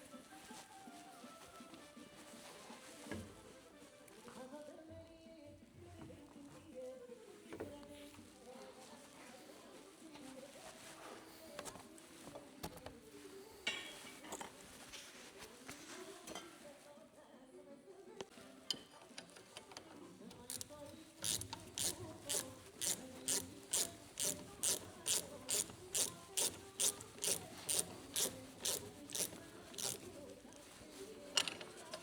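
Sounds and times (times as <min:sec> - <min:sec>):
hand tool ratcheting clicks: 0:20.4 - 0:30.1.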